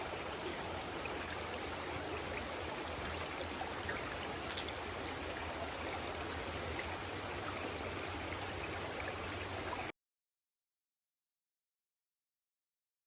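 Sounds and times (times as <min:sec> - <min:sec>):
stream water flowing: 0:00.0 - 0:09.9.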